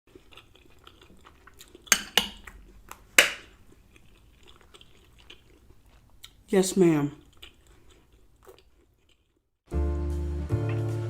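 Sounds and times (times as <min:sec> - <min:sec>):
cutlery clinking against dishes: 0:01.9 - 0:02.4.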